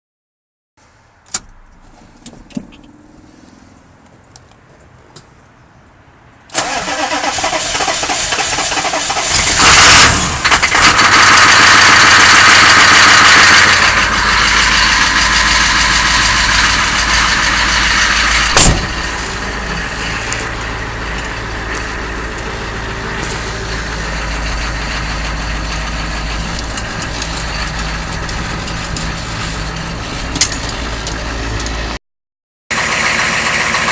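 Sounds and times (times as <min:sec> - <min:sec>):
engine starter clicks: 0:06.5 - 0:14.1
engine starting and idling: 0:06.5 - 0:31.9, 0:32.7 - 0:33.9.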